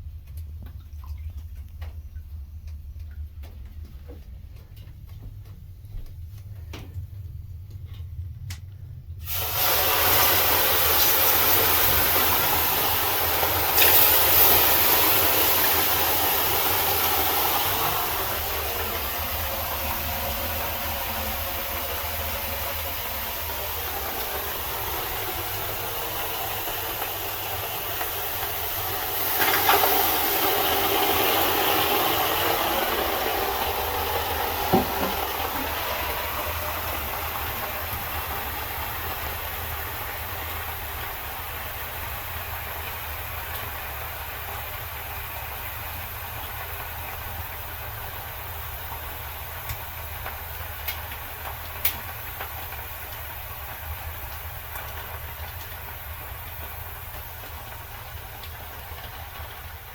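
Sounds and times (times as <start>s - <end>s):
water hissing on hot stones: 9.2s - 59.9s.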